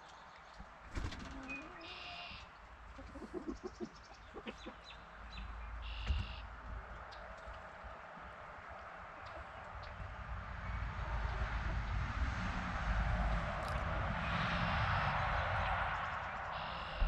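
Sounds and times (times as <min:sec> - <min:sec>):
chickens clucking: 0:00.5 - 0:05.6.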